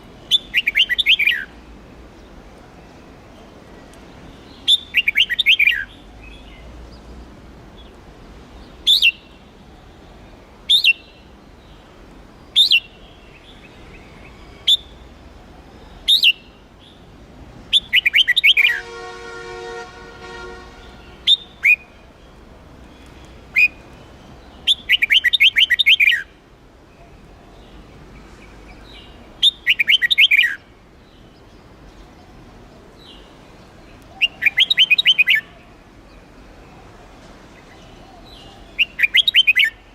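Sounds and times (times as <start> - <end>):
bird chirping and warbling: 0.2 - 1.5, 4.4 - 6.6, 16.0 - 16.5, 17.7 - 18.9, 23.0 - 26.3, 28.7 - 31.5, 34.1 - 35.7, 38.1 - 39.9.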